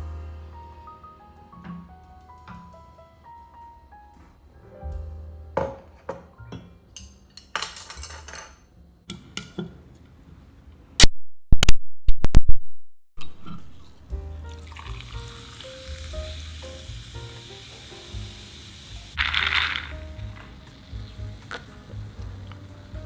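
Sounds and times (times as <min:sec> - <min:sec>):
background music: 0:00.0 - 0:07.3, 0:13.8 - 0:23.0
food sizzling in a hot pan: 0:14.6 - 0:23.0.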